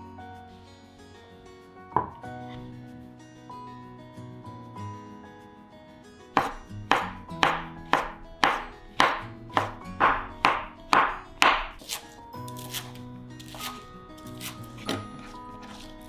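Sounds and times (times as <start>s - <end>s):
background music: 0.0s - 16.0s
knife chopping on cutting board: 2.0s - 2.2s, 6.4s - 16.0s.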